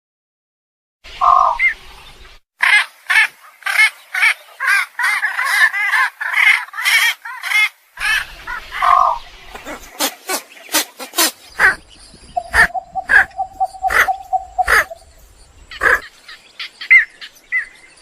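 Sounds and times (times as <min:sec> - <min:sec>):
egrets calling: 0:02.6 - 0:16.1.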